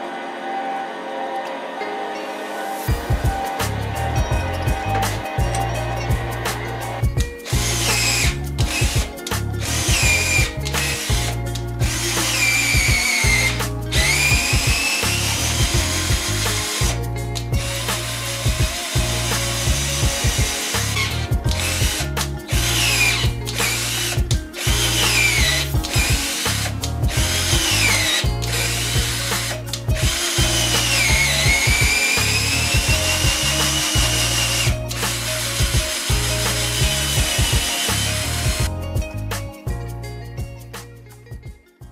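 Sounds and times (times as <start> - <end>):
background music with low bass: 0.0 - 41.9
woodworking machine whining: 6.7 - 9.0, 11.9 - 17.0, 17.7 - 26.7, 27.3 - 38.7.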